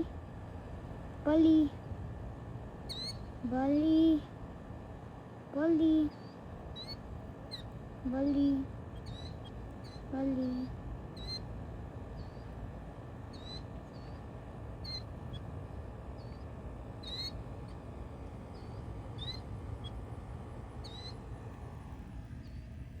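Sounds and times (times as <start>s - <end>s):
low background noise: 0.0s - 23.0s
bird chirping: 2.8s - 3.4s, 5.9s - 23.0s.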